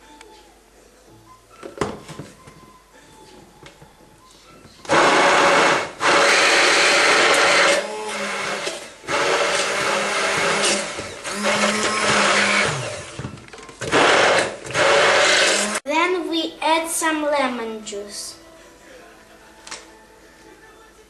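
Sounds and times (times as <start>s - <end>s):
electric blender running: 4.9s - 15.8s.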